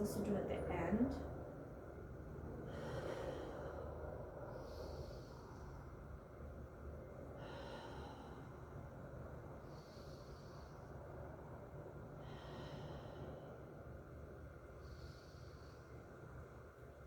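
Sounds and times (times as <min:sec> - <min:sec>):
slow deep breathing through nose: 0:02.5 - 0:06.6, 0:07.2 - 0:16.7.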